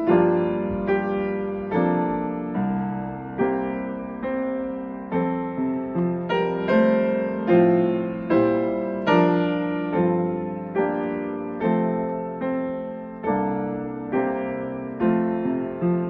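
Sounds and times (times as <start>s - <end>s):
solo piano hymn chords: 0.0s - 16.0s.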